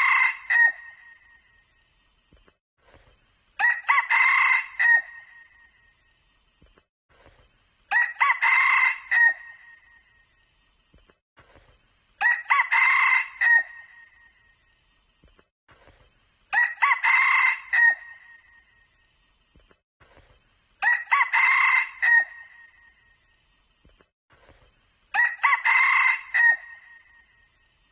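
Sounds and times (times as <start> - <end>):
rooster crowing: 0.0 - 1.0, 3.6 - 5.3, 7.9 - 9.6, 12.2 - 14.0, 16.5 - 18.3, 20.8 - 22.7, 25.1 - 27.1.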